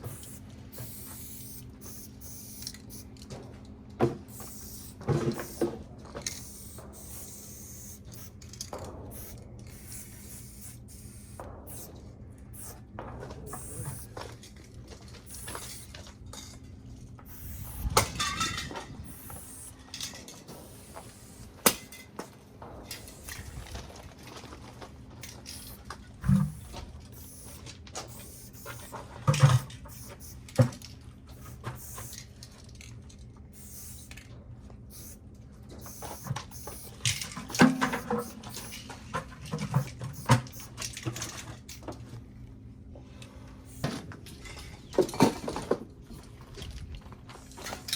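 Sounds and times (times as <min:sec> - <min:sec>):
spray can rattle: 0:00.0 - 0:03.2, 0:04.3 - 0:12.8, 0:13.5 - 0:14.2, 0:15.2 - 0:16.0, 0:17.3 - 0:22.0, 0:22.9 - 0:23.8, 0:25.2 - 0:30.6, 0:31.3 - 0:32.2, 0:33.6 - 0:34.2, 0:34.9 - 0:35.2, 0:35.8 - 0:38.9, 0:39.7 - 0:41.0, 0:43.7 - 0:43.9
spray cans clinking: 0:00.0 - 0:03.2, 0:04.3 - 0:11.9, 0:12.6 - 0:12.8, 0:13.5 - 0:14.2, 0:15.2 - 0:16.0, 0:17.3 - 0:22.1, 0:25.2 - 0:30.5, 0:33.6 - 0:34.1
steady low hum: 0:00.0 - 0:47.9.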